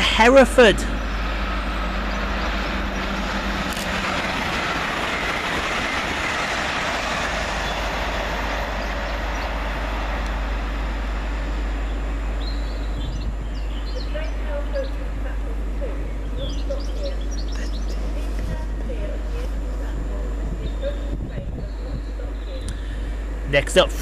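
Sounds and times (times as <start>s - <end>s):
train passing: 0.0s - 24.0s
faint bird chirps: 15.8s - 18.6s.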